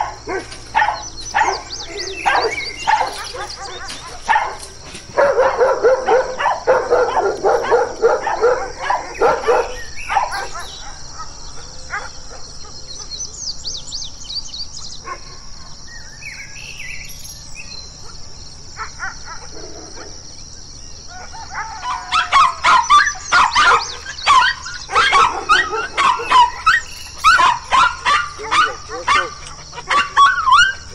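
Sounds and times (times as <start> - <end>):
large dog barking rapidly: 0.0 - 12.6, 18.8 - 20.2, 21.1 - 30.9
bird chirping: 0.0 - 30.9.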